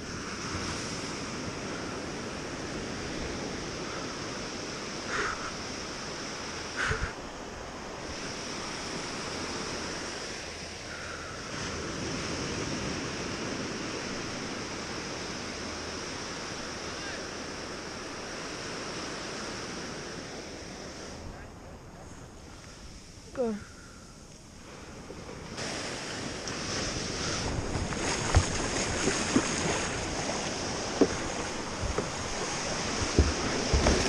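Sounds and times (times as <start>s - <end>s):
wind on microphone: 0.0s - 16.8s, 24.5s - 34.0s
ocean surf washing: 0.0s - 34.0s.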